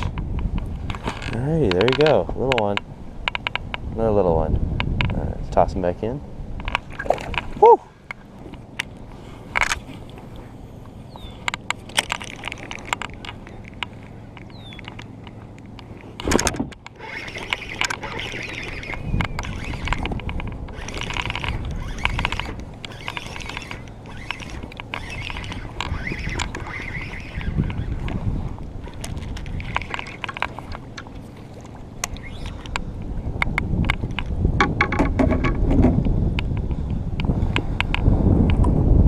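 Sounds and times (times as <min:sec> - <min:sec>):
water rushing with low rumble: 0:00.0 - 0:39.0
knocks against kayak hull: 0:34.6 - 0:36.0.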